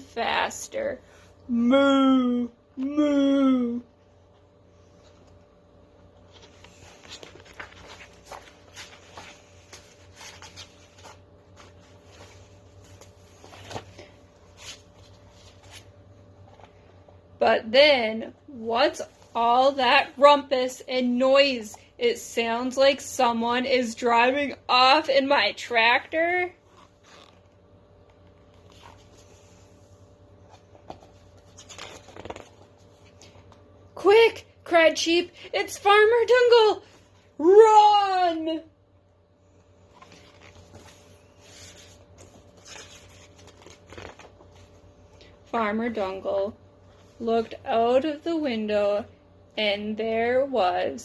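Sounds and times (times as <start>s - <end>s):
low electrical hum: 0.0s - 51.0s
book pages rustling: 6.1s - 17.1s, 26.6s - 33.7s, 39.6s - 45.5s
paper rustling and clicking: 6.4s - 12.2s, 30.6s - 32.8s, 41.7s - 44.6s.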